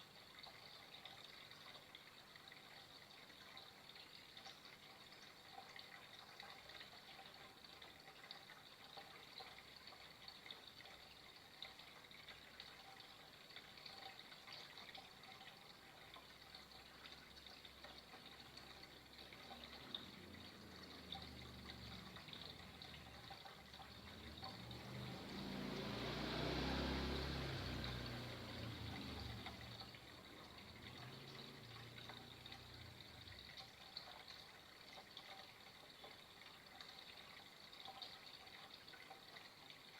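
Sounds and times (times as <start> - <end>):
flowing water rushing: 18.2 - 34.3.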